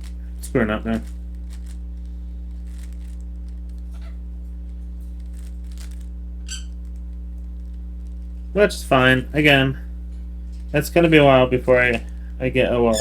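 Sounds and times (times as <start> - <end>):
electrical hum: 0.0 - 13.0
puzzle cube plastic clicks: 1.0 - 1.8, 2.5 - 3.9, 5.2 - 8.2.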